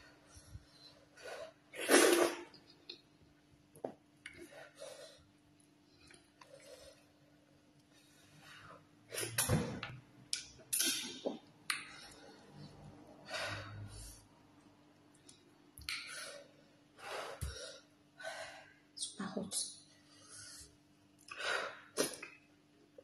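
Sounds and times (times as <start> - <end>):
breathing: 11.8 - 14.3, 16.1 - 18.8, 20.0 - 20.8.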